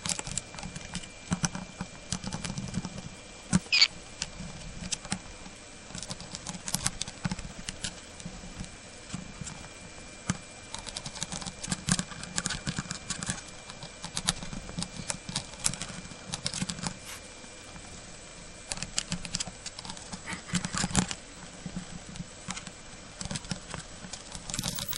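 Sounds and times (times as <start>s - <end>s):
bird beak crunching noodles: 3.6s - 3.9s.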